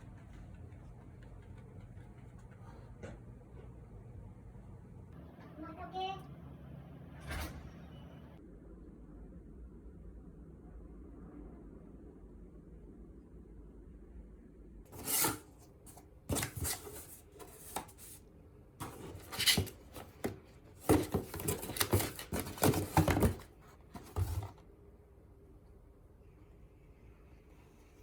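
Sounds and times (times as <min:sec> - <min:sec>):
rustling scraping handling noise: 0:14.9 - 0:24.6.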